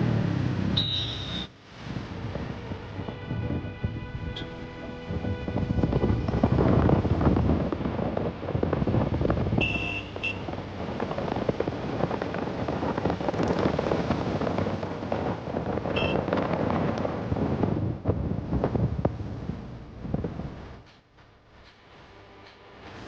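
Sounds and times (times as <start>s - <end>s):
motorcycle riding: 0.0s - 21.0s
crackling road noise: 0.0s - 23.0s
short high beeps: 0.8s - 1.5s
wind buffeting microphone: 1.7s - 20.9s.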